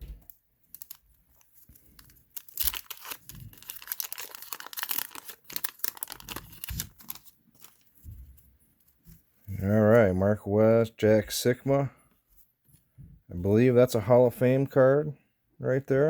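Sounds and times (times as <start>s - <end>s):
plastic sleeve crinkling: 0.0s - 9.5s.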